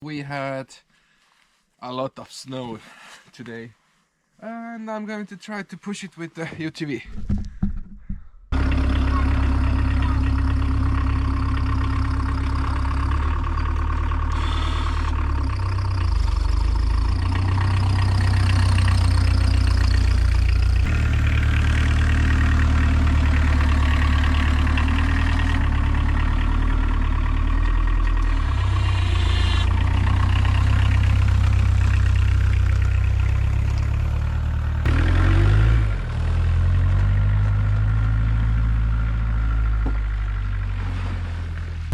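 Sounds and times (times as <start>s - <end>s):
diesel engine running: 8.5s - 41.9s
plow pushing snow: 8.6s - 41.9s.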